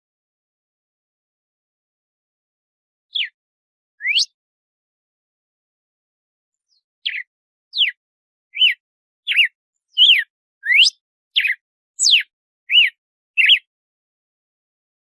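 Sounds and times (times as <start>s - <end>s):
bird whistling short notes: 3.1s - 3.4s, 4.0s - 4.4s, 6.7s - 13.7s.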